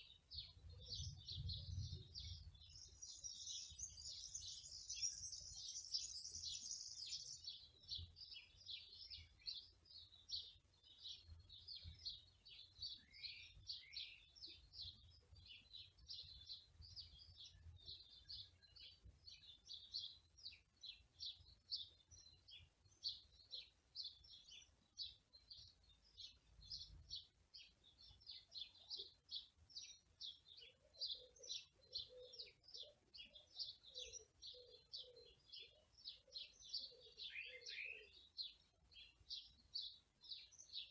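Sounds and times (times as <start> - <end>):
songbirds chirping and twittering: 0.0 - 40.9
lower repeated bird call: 33.7 - 38.3.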